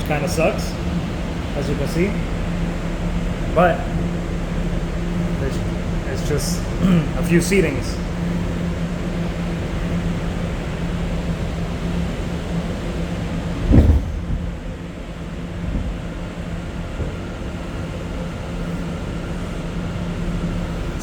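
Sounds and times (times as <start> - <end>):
subway car rumble: 0.0 - 21.0
loud thump: 13.7 - 14.6.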